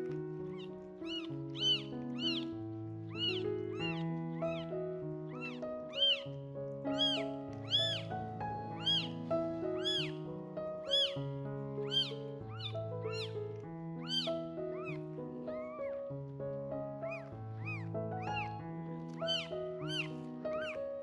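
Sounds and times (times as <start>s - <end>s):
background music: 0.0s - 21.0s
kittens mewing: 0.5s - 4.7s, 5.3s - 6.3s, 6.9s - 9.2s, 9.8s - 10.2s, 10.9s - 11.2s, 11.8s - 13.4s, 14.0s - 15.0s, 17.1s - 20.8s.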